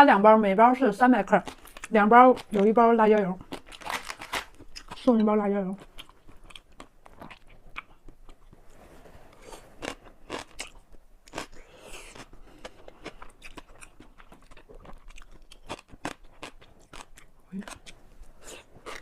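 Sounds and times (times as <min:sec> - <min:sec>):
person chewing crunchy food: 0:01.4 - 0:05.2, 0:05.8 - 0:08.7, 0:09.3 - 0:19.0.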